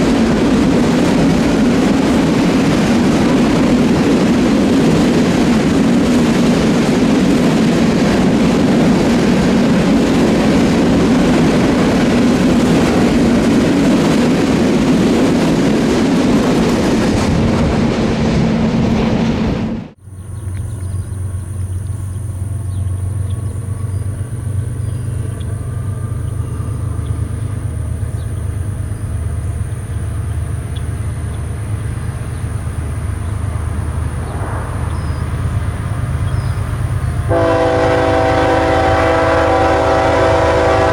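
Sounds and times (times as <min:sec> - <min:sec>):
freight train wheels on rail: 0:00.0 - 0:40.9
low drone: 0:30.2 - 0:37.3.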